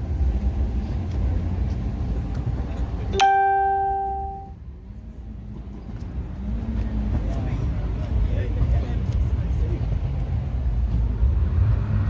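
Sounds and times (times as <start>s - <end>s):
bell-like chime: 3.2s - 4.5s.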